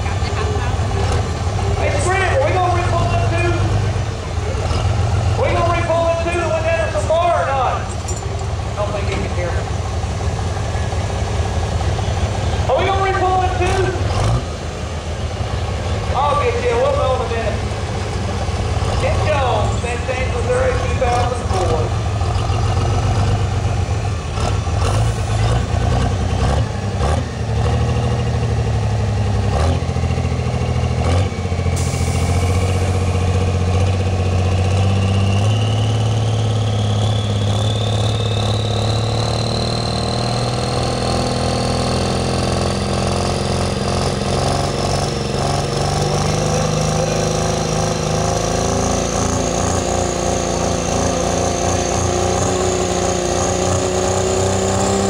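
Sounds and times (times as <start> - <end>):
diesel truck engine under load: 0.0 - 55.0.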